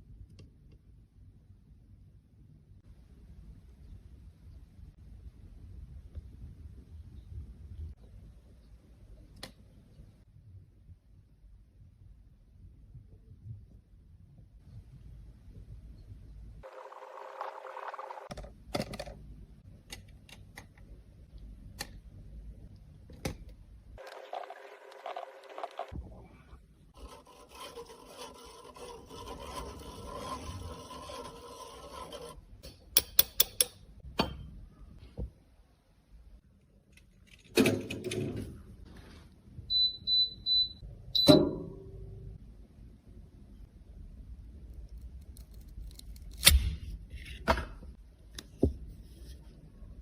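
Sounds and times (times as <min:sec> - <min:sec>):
rasping scrape of powder: 0:27.0 - 0:32.4.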